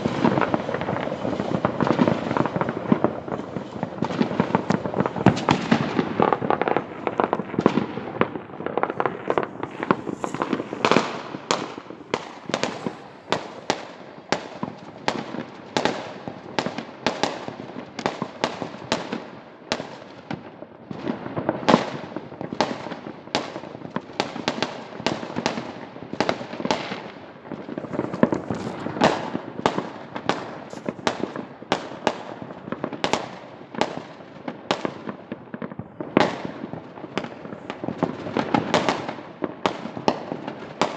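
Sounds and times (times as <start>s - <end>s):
sharp firework bangs: 0.0s - 17.5s, 27.6s - 40.9s
distant fireworks rumble and crackle: 0.0s - 40.9s.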